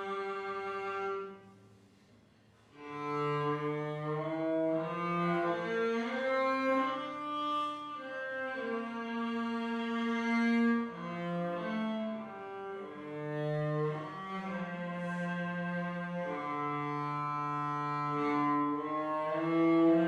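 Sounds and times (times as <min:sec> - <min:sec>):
cello playing slow melody: 0:00.0 - 0:01.6, 0:02.7 - 0:20.0.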